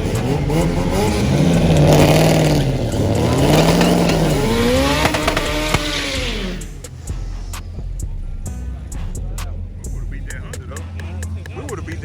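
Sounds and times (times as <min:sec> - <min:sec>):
car engine revving hard: 0:00.0 - 0:12.0
sharp engine pops: 0:03.4 - 0:06.2.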